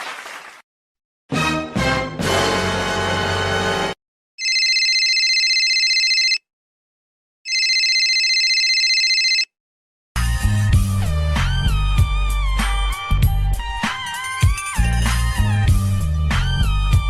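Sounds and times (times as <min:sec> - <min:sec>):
telephone ringing: 0:04.4 - 0:06.4, 0:07.5 - 0:09.5.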